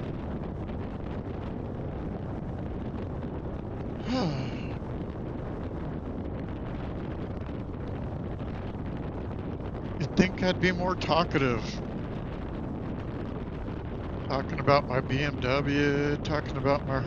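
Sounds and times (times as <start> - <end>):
wind rush on helmet microphone: 0.0 - 17.0
person sighing: 4.0 - 4.8.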